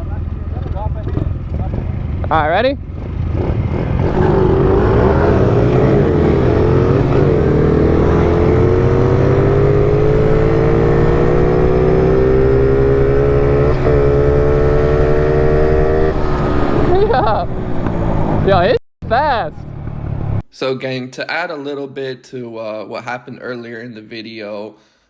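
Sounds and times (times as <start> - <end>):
small engine at full throttle: 3.0 - 17.0.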